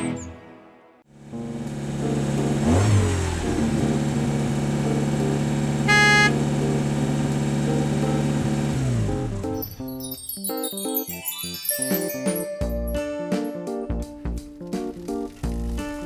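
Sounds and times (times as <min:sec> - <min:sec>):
cartoon vehicle engine running: 0:01.1 - 0:09.9
short horn beep: 0:05.9 - 0:06.4.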